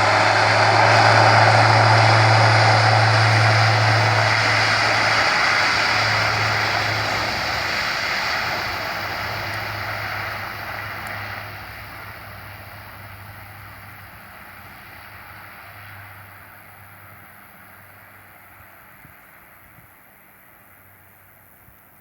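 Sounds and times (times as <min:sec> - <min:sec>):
propeller hum: 0:00.0 - 0:18.9
aircraft engine rush: 0:00.0 - 0:21.8.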